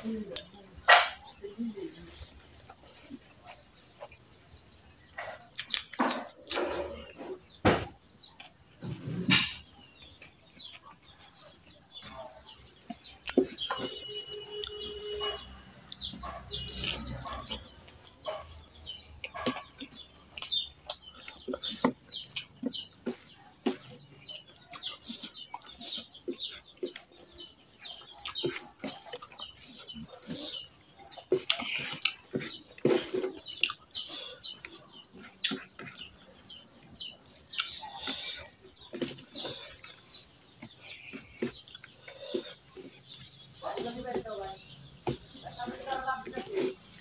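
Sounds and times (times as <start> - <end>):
chewing and lip smacking: 5.4 - 6.6, 10.1 - 43.5
fingers squishing rice: 10.3 - 47.0.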